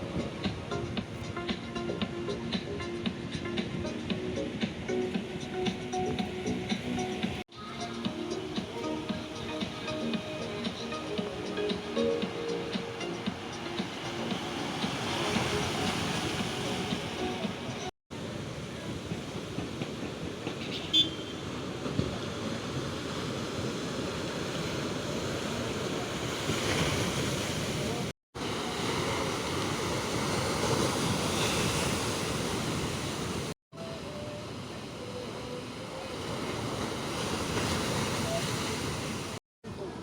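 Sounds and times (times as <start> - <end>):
waves breaking on rocks: 13.4 - 20.4, 21.4 - 33.5, 34.6 - 39.4.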